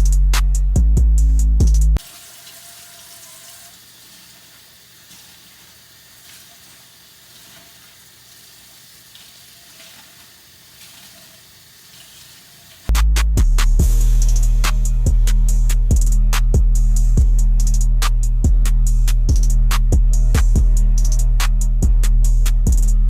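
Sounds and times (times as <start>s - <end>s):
background music: 0.0s - 2.0s, 12.9s - 23.0s
water running at sink: 2.0s - 12.9s.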